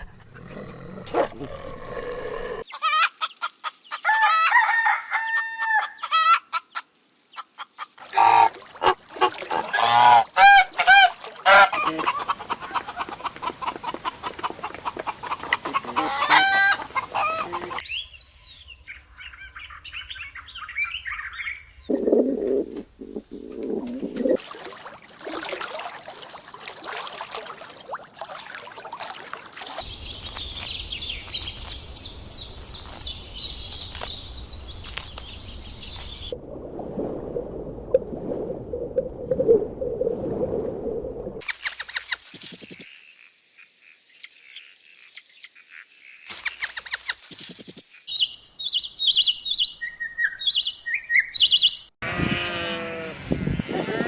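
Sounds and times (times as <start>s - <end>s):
birds honking: 8.2s - 17.8s
fowl clucking: 9.6s - 17.8s
high bird chirping: 44.1s - 45.6s, 46.4s - 52.0s.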